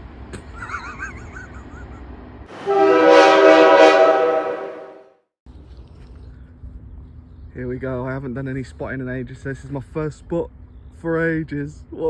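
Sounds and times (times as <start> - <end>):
train horn: 2.5 - 5.1.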